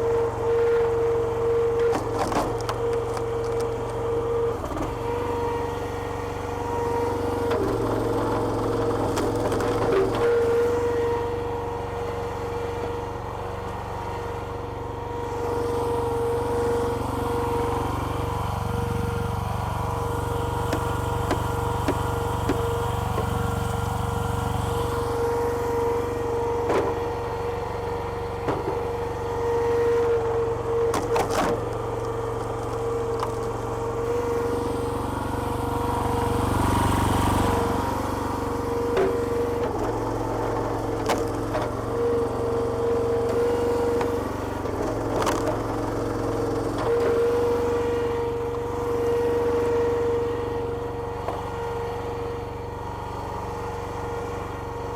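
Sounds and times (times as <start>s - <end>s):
petrol engine and pump whining: 0.0s - 54.9s
logs cracking and splitting: 2.0s - 4.0s.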